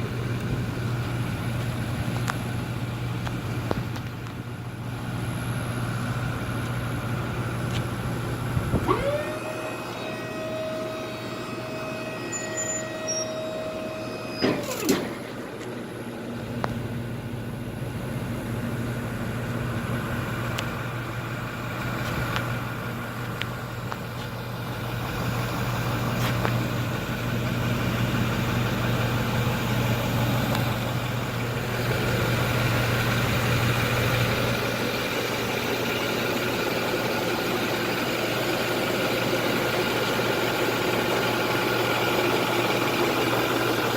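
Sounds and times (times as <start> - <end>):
diesel truck engine idling: 0.0 - 43.9
high whine: 5.1 - 17.8.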